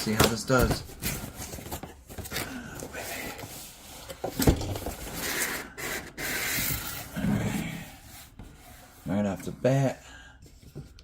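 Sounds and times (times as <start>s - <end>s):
cardboard rubbing and scraping: 5.0s - 9.2s.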